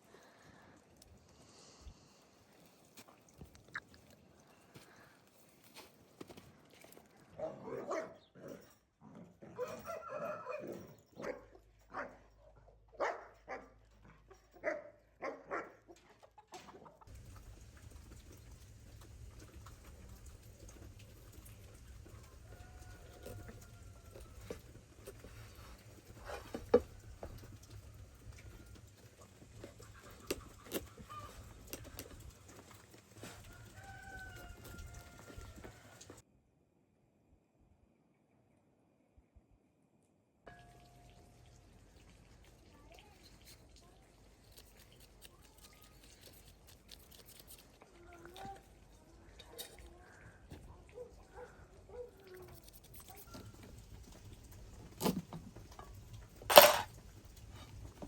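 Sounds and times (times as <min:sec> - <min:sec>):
chickens calling faintly: 0:12.9 - 0:36.2, 0:43.8 - 0:54.7
clicks and knocks: 0:56.5 - 0:56.9.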